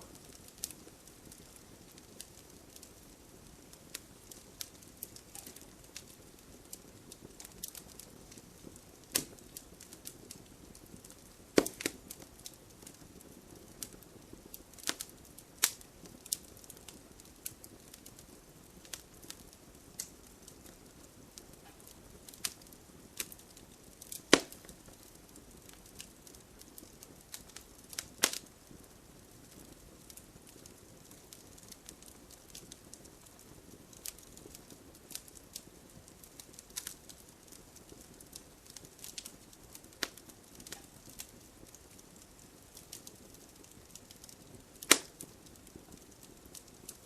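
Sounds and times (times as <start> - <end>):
hiss of flame: 0.0 - 34.4
wood fire crackling and popping: 0.0 - 47.0.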